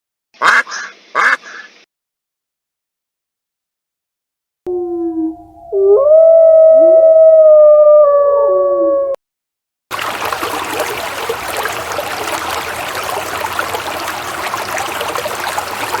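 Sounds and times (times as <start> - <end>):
dog howling: 4.7 - 9.2
second dog howling: 4.7 - 9.2.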